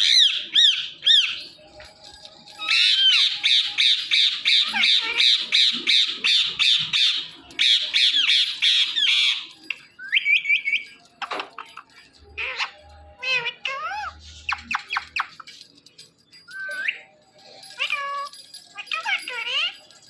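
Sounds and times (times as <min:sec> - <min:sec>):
parrot squawking: 0:00.0 - 0:01.4, 0:02.6 - 0:11.4, 0:12.4 - 0:15.4, 0:17.8 - 0:19.9.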